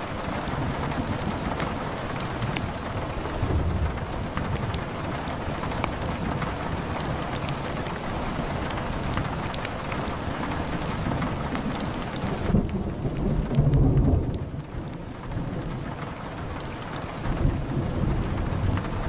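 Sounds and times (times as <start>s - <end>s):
wood fire crackling: 0.0s - 18.9s
steady rain: 0.0s - 19.0s
thunder rumble: 0.0s - 19.0s.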